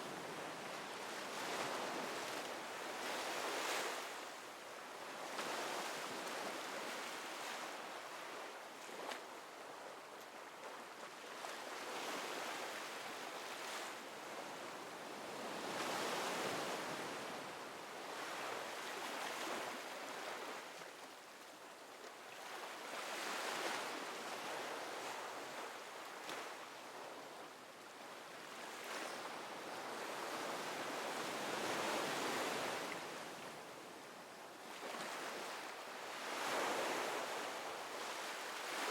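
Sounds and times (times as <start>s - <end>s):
ocean waves washing onto shore: 34.8s - 38.9s.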